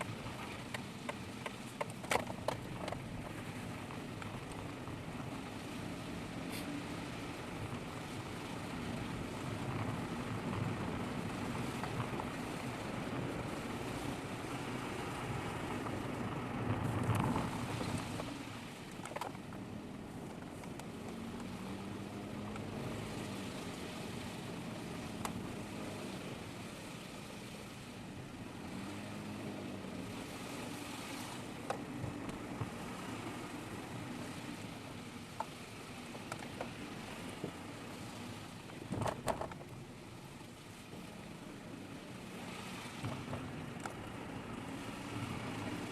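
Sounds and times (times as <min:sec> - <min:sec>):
car engine: 0:00.0 - 0:45.9.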